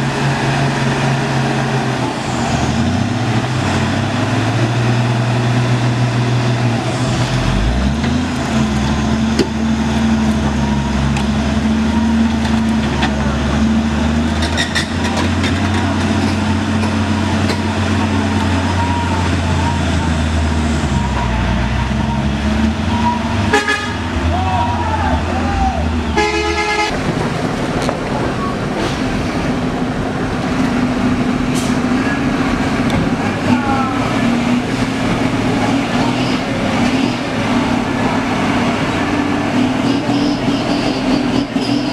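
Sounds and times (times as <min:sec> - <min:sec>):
truck engine running: 0:00.0 - 0:41.9
truck horn: 0:22.9 - 0:24.3, 0:26.0 - 0:27.0.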